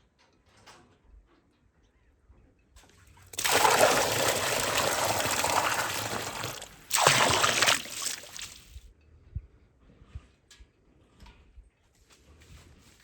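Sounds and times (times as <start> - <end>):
water pouring: 3.3 - 8.8.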